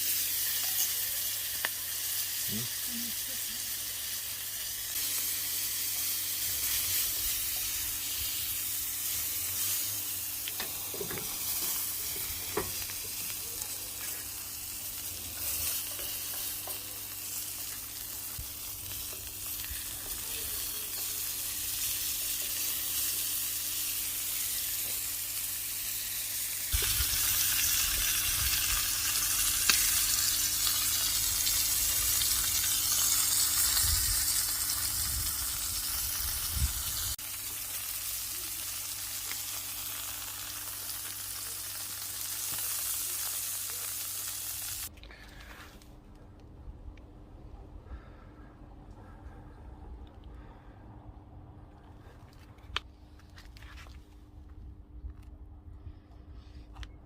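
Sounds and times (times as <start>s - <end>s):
food sizzling in a hot pan: 0.0s - 44.9s.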